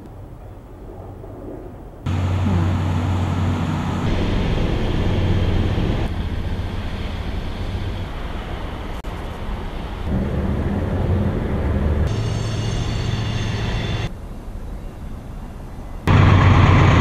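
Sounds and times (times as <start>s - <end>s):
locomotive engines rumbling: 0.0s - 17.0s
freight cars rolling past: 2.1s - 14.1s, 16.0s - 17.0s
high multi-tone whine: 9.6s - 14.1s.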